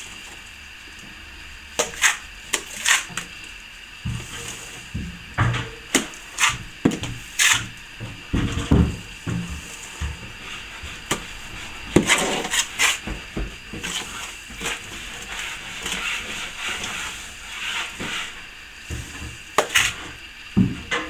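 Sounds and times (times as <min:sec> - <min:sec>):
trowel scraping wet plaster: 0:01.8 - 0:03.4, 0:05.6 - 0:07.8, 0:08.4 - 0:20.2.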